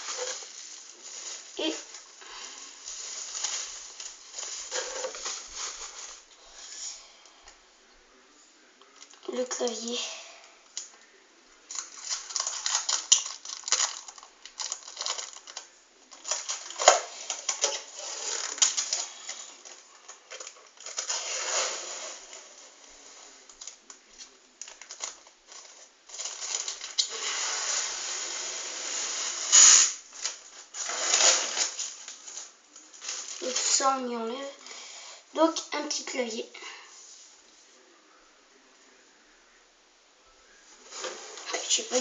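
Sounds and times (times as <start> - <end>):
wrapping crinkling and rustling: 0.0 - 6.8, 8.8 - 34.8, 40.7 - 42.0
small clicks and crackles: 10.6 - 21.4, 22.3 - 27.3.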